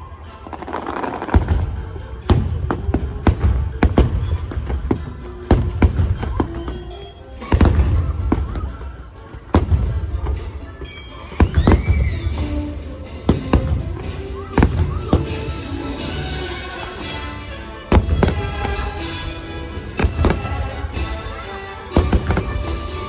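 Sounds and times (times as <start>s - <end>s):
music soundtrack: 0.0s - 23.0s
fireworks cracking: 0.3s - 23.0s
fireworks booming: 1.0s - 23.0s.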